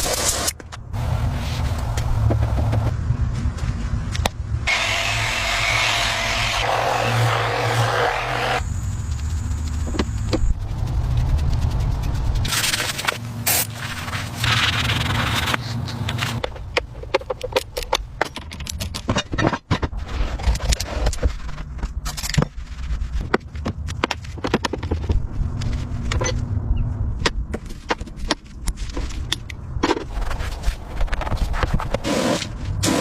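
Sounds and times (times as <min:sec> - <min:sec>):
hand tools clicking and knocking: 0:16.4 - 0:19.9.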